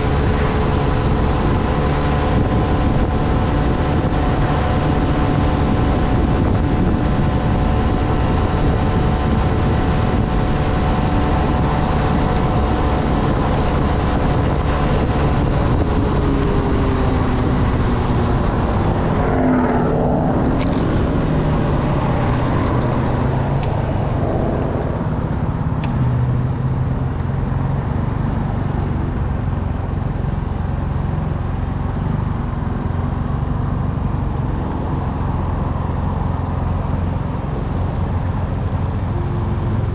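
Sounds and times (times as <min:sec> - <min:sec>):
wind noise: 0:00.0 - 0:27.0.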